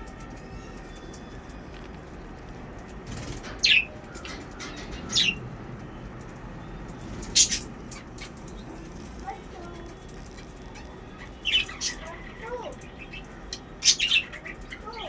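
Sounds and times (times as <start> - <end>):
faint budgerigar chirps: 7.1 - 15.0.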